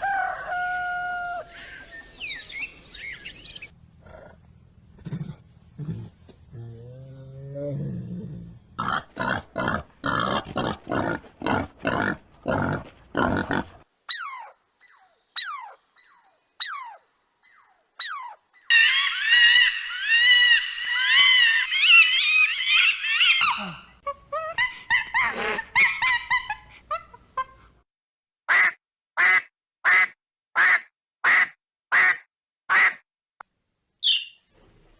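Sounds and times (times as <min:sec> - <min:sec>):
warbling birdsong: 0:00.0 - 0:04.4, 0:13.9 - 0:24.0, 0:34.0 - 0:34.9.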